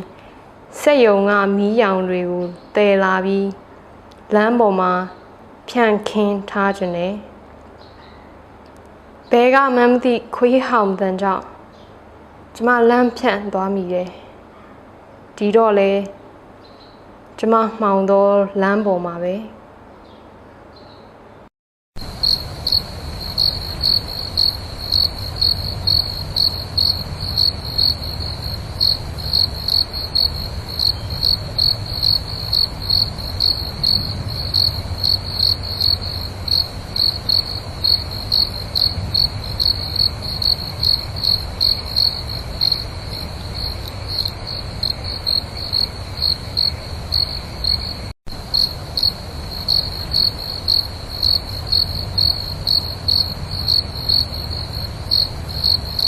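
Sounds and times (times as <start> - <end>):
cricket chirping: 22.0 - 56.0.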